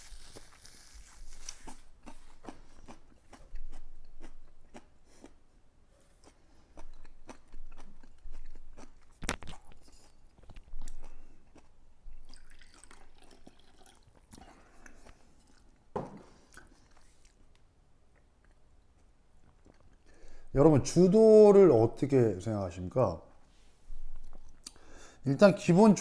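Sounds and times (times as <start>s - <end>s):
chewing crunchy fried food: 0.0s - 20.5s.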